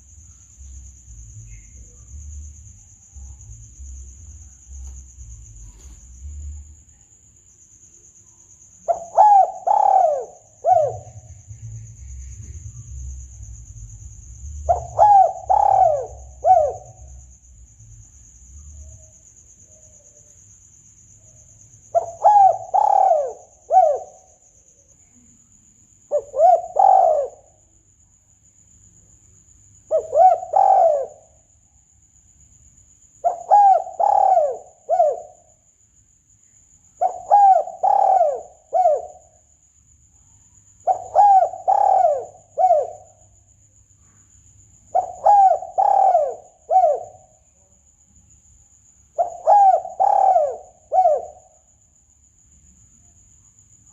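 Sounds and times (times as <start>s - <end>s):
dove cooing: 8.8s - 11.8s, 12.4s - 17.2s, 21.9s - 24.3s, 26.1s - 27.6s, 29.9s - 31.4s, 33.2s - 35.5s, 37.0s - 39.4s, 40.8s - 43.2s, 44.9s - 47.3s, 49.2s - 51.6s.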